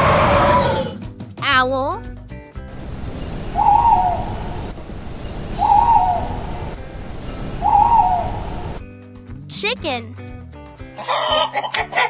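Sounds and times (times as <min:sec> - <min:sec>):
owl hooting: 0:02.7 - 0:08.8
steady background hiss: 0:02.7 - 0:08.8.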